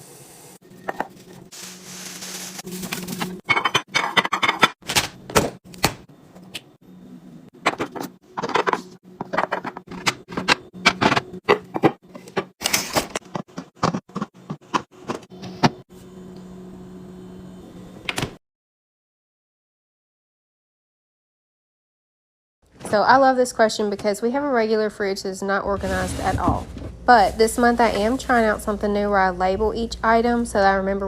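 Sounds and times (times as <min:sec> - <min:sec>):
refrigerator low hum: 0:00.6 - 0:18.4, 0:22.7 - 0:31.0.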